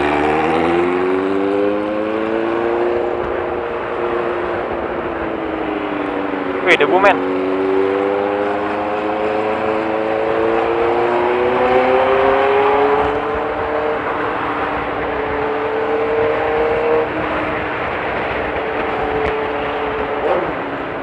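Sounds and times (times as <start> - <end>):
wind and road noise: 0.0 - 21.0.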